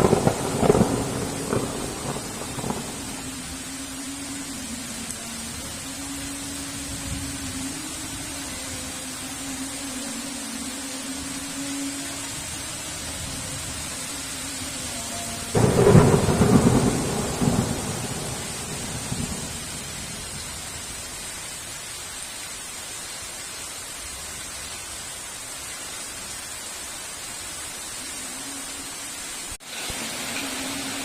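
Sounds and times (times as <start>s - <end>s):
thunderclap rolling: 0.0s - 3.2s, 15.6s - 20.5s
heavy rain: 0.0s - 31.0s.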